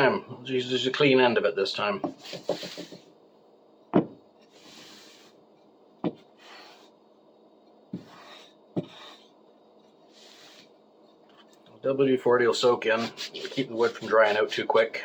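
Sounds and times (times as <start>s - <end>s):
wood knocking on hard surface: 2.0s - 3.0s, 3.9s - 4.2s
rag wiping wood: 2.2s - 3.0s, 12.8s - 14.8s.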